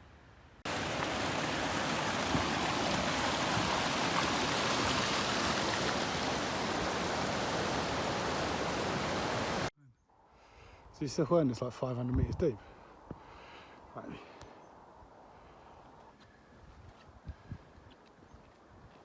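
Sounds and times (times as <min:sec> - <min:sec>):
stream rushing over rocks: 0:00.7 - 0:09.7.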